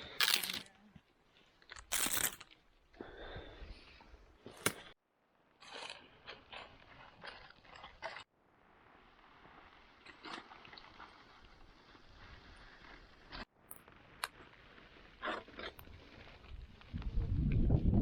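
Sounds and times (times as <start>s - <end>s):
crunching and rustling: 0.0s - 2.9s, 5.6s - 8.3s, 8.9s - 17.5s.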